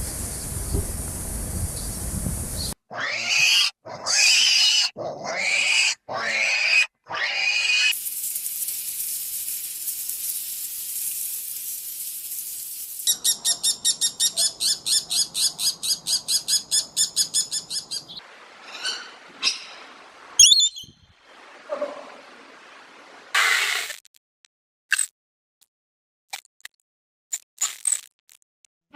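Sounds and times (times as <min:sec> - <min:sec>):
steady hiss: 0:00.0 - 0:02.8, 0:08.0 - 0:13.2
bird chattering call: 0:13.0 - 0:18.2, 0:20.4 - 0:20.9.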